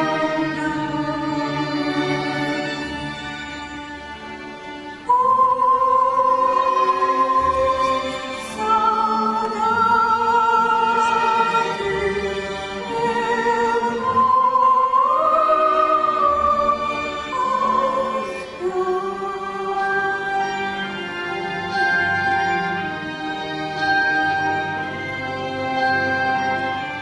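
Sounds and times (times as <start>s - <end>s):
string orchestra: 0.0s - 27.0s
person singing with vibrato: 5.1s - 22.8s.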